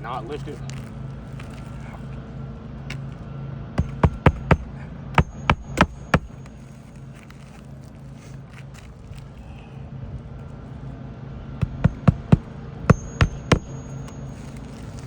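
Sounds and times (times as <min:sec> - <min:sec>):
hammer striking roofing nails: 0:03.8 - 0:06.4, 0:11.6 - 0:14.1.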